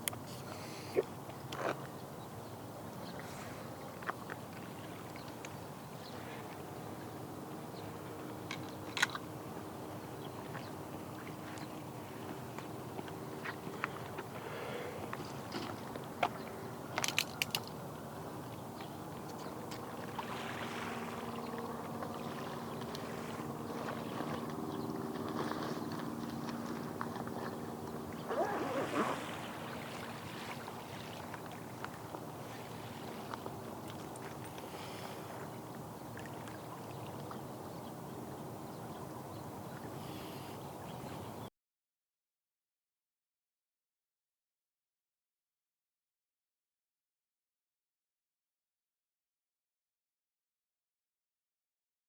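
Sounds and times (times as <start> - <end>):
boat engine humming: 3.5 - 16.8, 17.9 - 35.6
small waves lapping at shore: 18.5 - 38.3.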